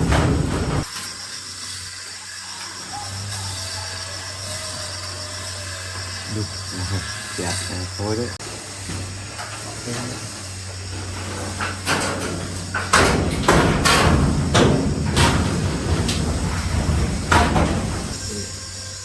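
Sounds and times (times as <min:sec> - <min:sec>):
irregular knocks and clattering bangs: 0:00.0 - 0:01.0, 0:10.7 - 0:18.6
steady low hum: 0:00.0 - 0:02.3, 0:04.2 - 0:19.0.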